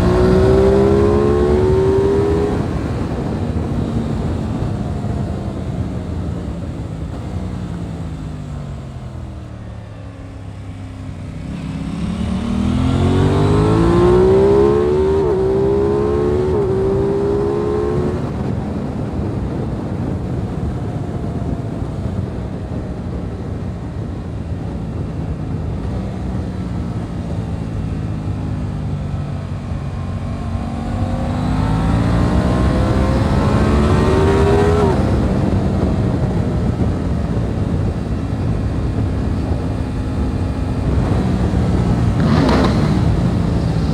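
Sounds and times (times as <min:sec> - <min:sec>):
wind rush: 0:00.0 - 0:08.0, 0:11.0 - 0:28.0, 0:29.5 - 0:43.9
motorcycle engine accelerating: 0:00.0 - 0:43.9.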